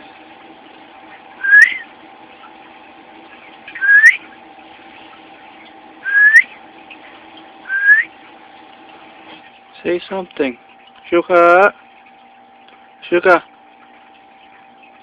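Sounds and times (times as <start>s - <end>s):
low hum: 0.0s - 15.0s
cockatiel whistling: 1.4s - 1.8s, 3.8s - 4.2s, 6.0s - 6.5s, 7.7s - 8.1s.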